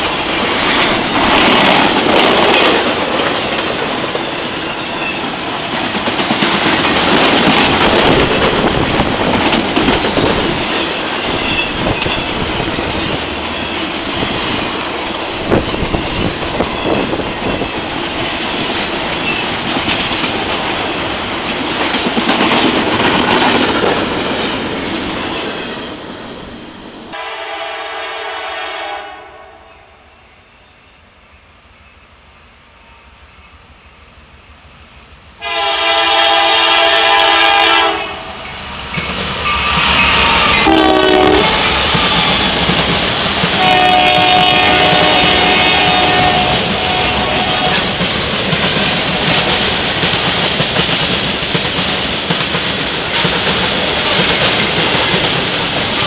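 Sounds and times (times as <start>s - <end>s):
wheels clacking over rail joints: 0.0s - 25.9s, 38.5s - 56.0s
freight train rolling: 0.0s - 56.0s
locomotive horn blast: 27.1s - 29.9s, 35.4s - 38.4s, 39.6s - 42.5s, 43.6s - 48.0s.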